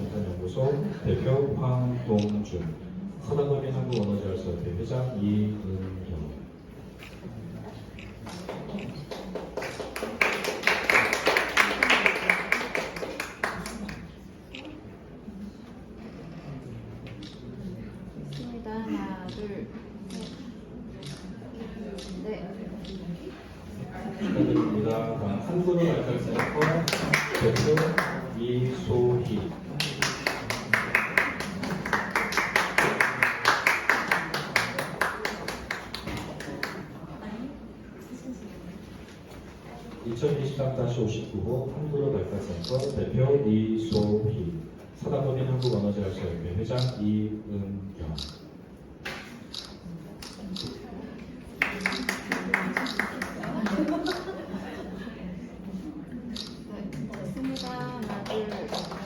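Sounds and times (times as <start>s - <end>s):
audience applauding: 9.0s - 14.1s, 26.4s - 28.3s, 29.7s - 36.8s, 51.6s - 54.3s.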